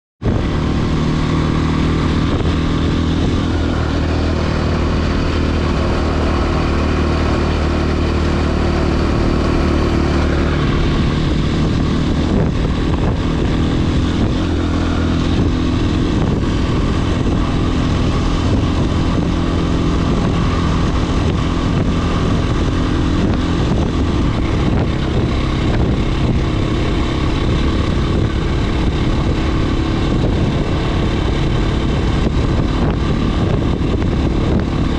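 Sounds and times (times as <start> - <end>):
dirt bike engine running: 0.2 - 34.9.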